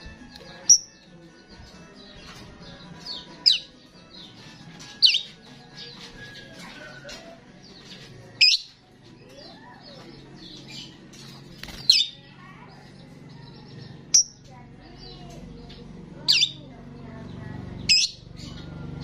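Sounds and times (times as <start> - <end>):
starling chattering chirps: 3.0 - 5.4, 7.8 - 8.8, 11.8 - 18.7.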